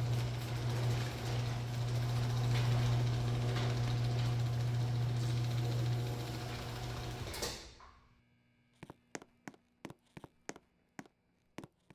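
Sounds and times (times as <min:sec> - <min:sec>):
garage door opener clunk: 0:00.0 - 0:08.0
garage door opener humming: 0:00.0 - 0:08.0.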